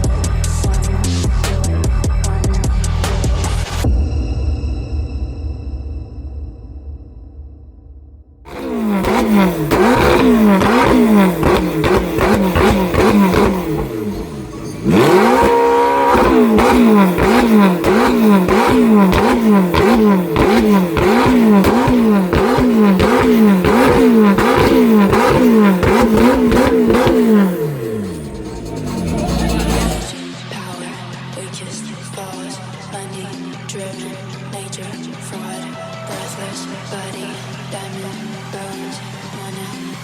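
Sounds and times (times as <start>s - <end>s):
supercar engine revving: 8.5s - 30.4s.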